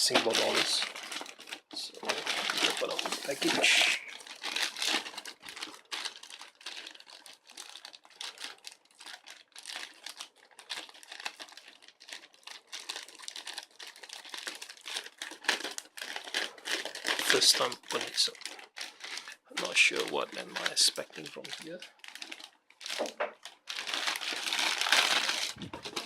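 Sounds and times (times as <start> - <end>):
packaging crinkling: 0.0 - 26.0.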